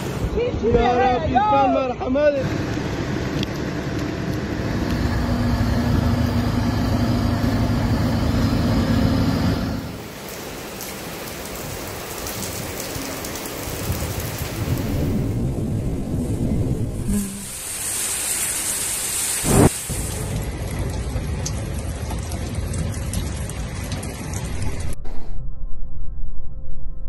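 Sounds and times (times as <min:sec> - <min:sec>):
heavy rain on a street: 0:00.0 - 0:25.0
rushing floodwater: 0:00.0 - 0:25.0
wind: 0:00.0 - 0:26.9
low rumble of thunder: 0:12.2 - 0:17.2.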